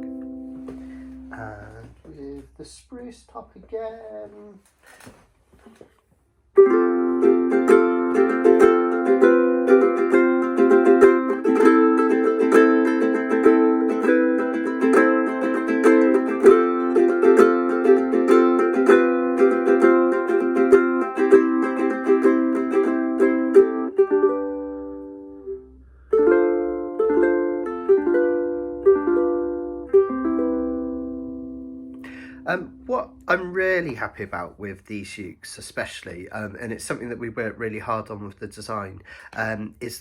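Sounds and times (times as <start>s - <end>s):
ukulele strumming chords: 0.0s - 2.5s, 6.6s - 34.0s.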